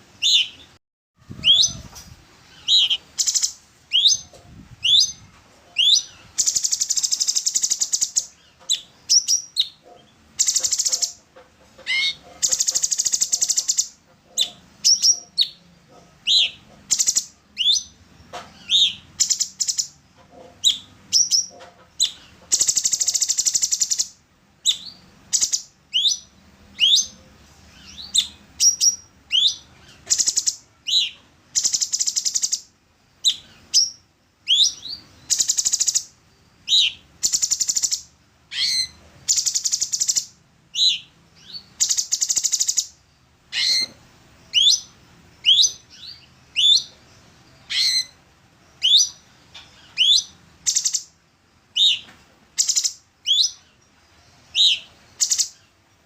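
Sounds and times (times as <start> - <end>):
bird singing whistled notes: 0.2 - 1.9, 2.5 - 9.8, 16.2 - 18.0, 20.6 - 27.2, 27.8 - 55.7
bird buzzy chatters: 5.8 - 17.4.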